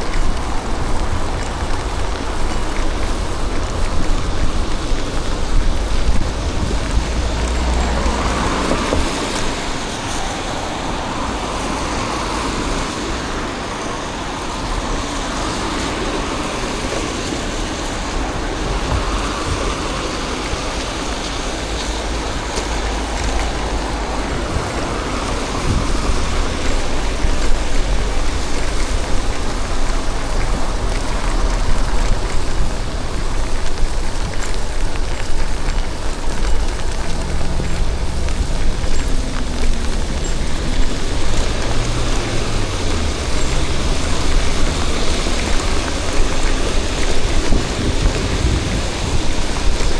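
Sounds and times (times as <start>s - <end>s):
road traffic on wet streets: 0.0s - 49.9s
steady rain: 0.0s - 49.9s
vehicles passing: 0.0s - 49.9s.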